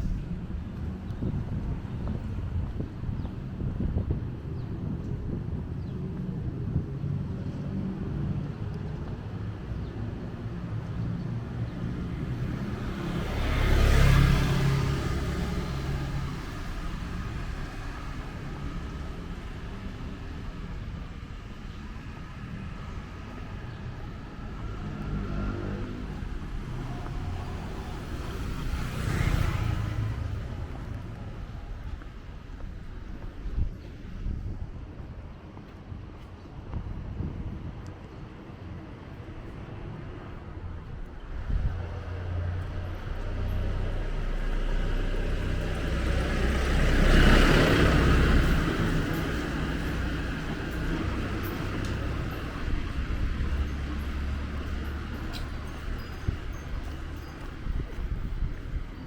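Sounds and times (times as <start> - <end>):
vehicle engines running: 0.0 - 59.0
vehicle passing close: 12.1 - 20.0, 23.1 - 32.6, 41.3 - 58.9.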